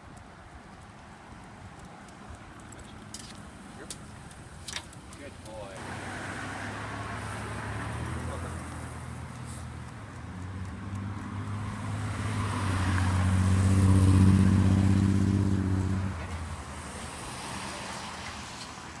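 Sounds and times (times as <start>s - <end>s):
motor engine passing by: 5.8s - 18.8s.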